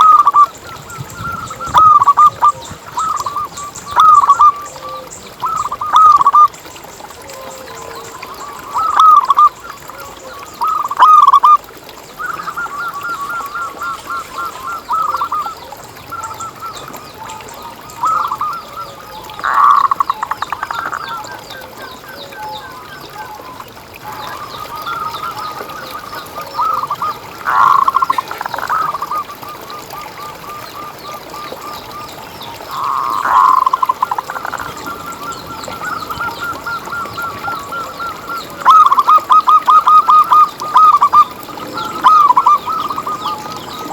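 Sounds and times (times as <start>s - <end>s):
dove cooing: 0.0s - 6.5s, 32.7s - 43.9s.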